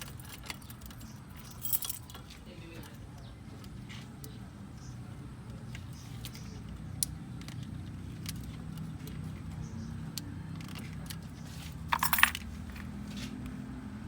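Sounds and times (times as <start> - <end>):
metallic jingling and clinking: 0.0 - 2.4, 11.8 - 12.8.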